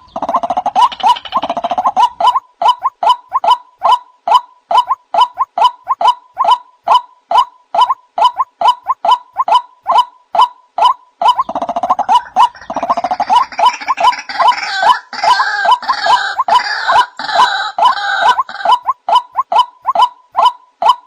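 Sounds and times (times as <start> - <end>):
chorus of overlapping bird calls: 0.0 - 21.0
waterhen calls: 0.0 - 21.0.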